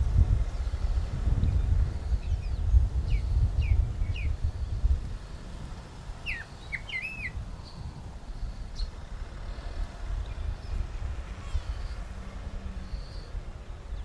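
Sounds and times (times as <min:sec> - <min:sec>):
birds chirping: 0:06.2 - 0:14.0.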